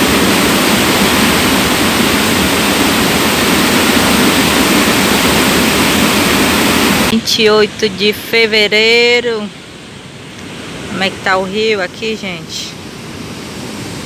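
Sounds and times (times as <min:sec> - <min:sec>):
fast-flowing river water: 0:00.0 - 0:07.1.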